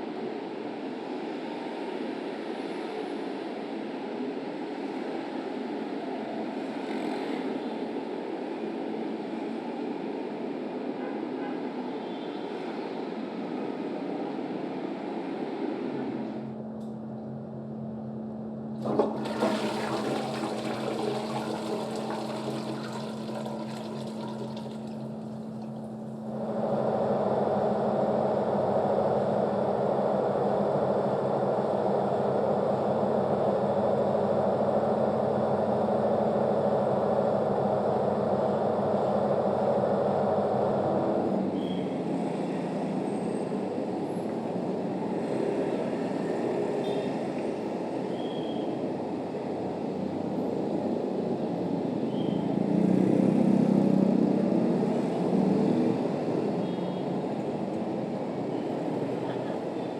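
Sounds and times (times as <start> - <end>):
steady low hum: 14.7 - 41.4
water rushing: 18.8 - 26.1.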